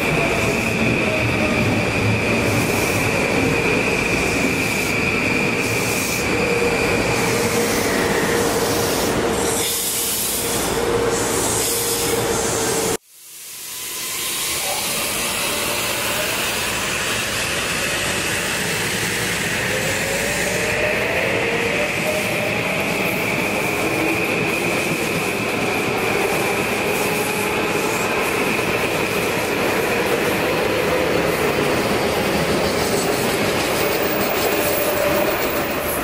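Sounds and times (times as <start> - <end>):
train wheels rolling: 14.0 - 36.0.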